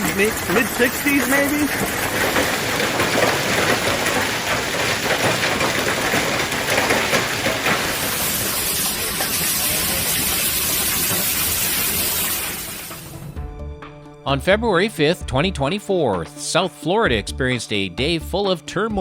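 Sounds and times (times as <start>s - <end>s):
heavy rain pouring: 0.0s - 13.4s.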